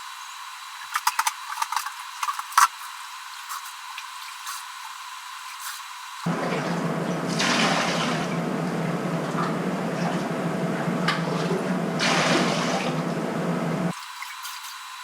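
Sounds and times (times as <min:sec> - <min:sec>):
toilet flushing: 0:06.2 - 0:14.4.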